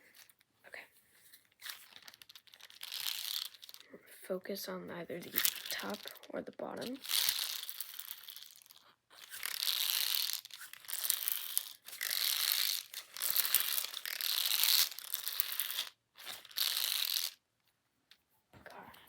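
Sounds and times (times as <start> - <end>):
dry crinkling rustling: 1.1 - 3.9, 5.2 - 17.4.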